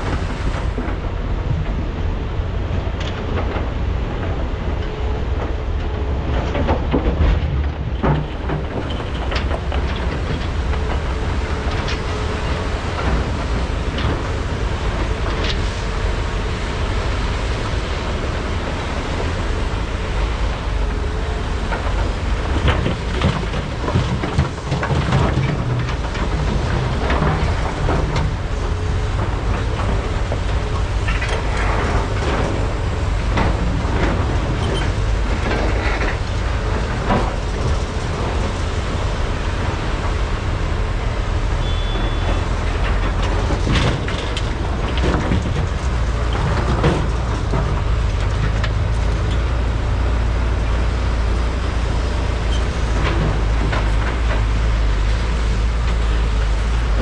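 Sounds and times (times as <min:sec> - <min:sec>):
diesel engines running: 0:00.0 - 0:57.0.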